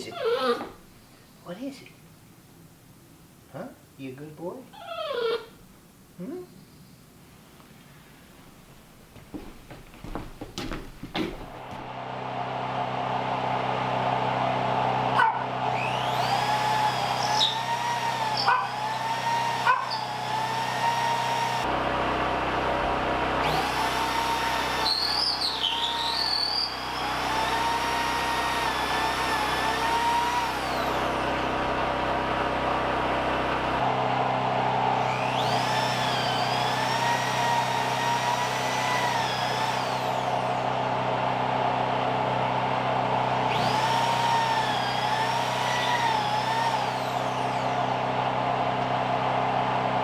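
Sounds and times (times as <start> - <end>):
sharp knocks: 9.2 - 11.9
machine motor whine: 11.6 - 50.0.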